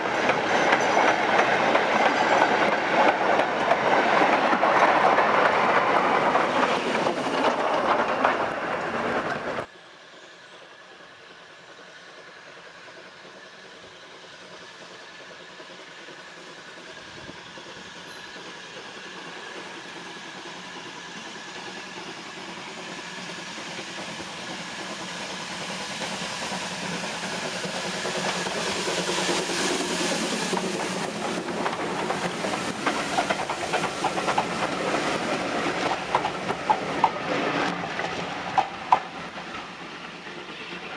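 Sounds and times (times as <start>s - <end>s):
train approaching: 0.0s - 40.9s
wheels clicking over rail joints: 26.5s - 39.8s.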